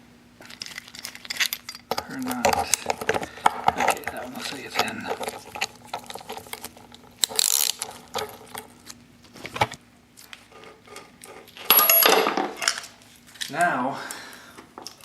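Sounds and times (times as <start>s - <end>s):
metal tools clinking and scraping: 0.4s - 8.8s, 10.5s - 13.6s
scraping rattle: 0.4s - 8.8s.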